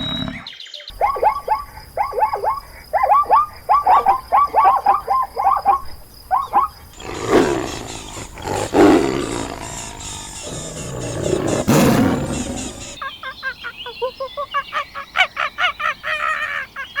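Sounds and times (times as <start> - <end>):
rough animal sound: 0.0 - 0.5, 7.0 - 13.0
farm animals calling: 0.0 - 16.4.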